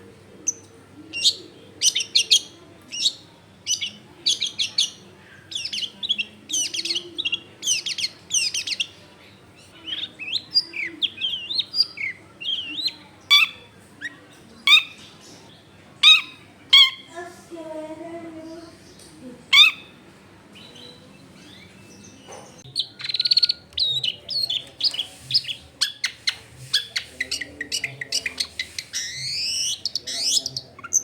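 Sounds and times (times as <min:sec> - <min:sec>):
shrike singing: 0:00.1 - 0:09.0, 0:09.6 - 0:15.0, 0:20.6 - 0:31.0.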